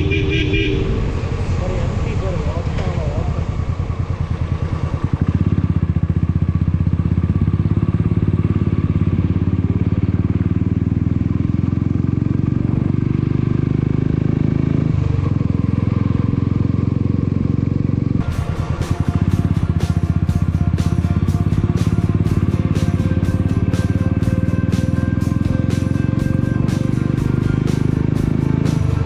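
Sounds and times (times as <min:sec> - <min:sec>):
motorcycle engine running: 0:00.0 - 0:29.0
background music with beat: 0:18.2 - 0:29.0.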